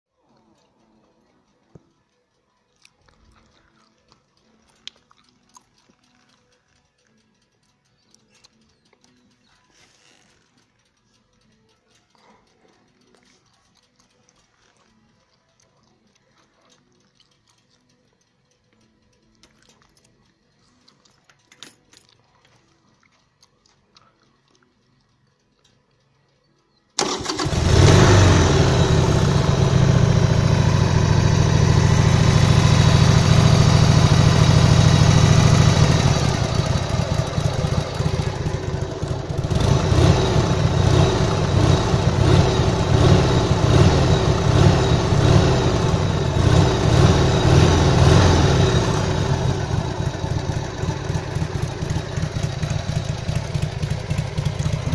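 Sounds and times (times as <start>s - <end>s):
faint clicks: 0.2s - 27.5s
motorcycle engine idling: 27.0s - 54.9s.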